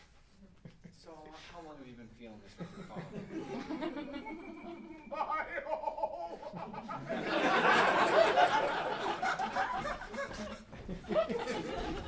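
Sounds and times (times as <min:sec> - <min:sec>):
audience laughing: 0:02.6 - 0:12.0.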